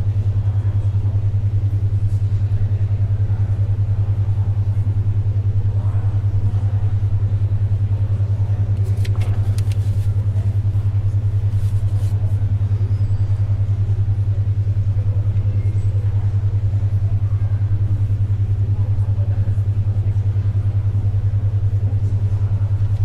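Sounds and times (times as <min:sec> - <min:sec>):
faint library background noise: 0:00.0 - 0:23.0
low pulsing hum tone: 0:00.0 - 0:23.0
paper rustles and ticks: 0:08.8 - 0:12.3.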